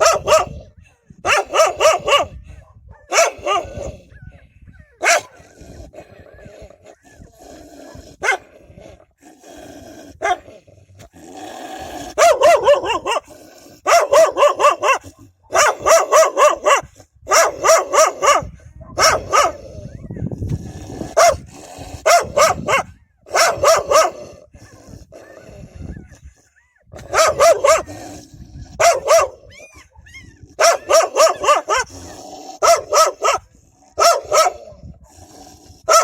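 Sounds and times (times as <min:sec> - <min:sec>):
dogs barking: 0:00.0 - 0:07.3, 0:07.9 - 0:08.5, 0:10.2 - 0:10.5, 0:12.1 - 0:20.1, 0:21.1 - 0:28.1, 0:28.8 - 0:34.9.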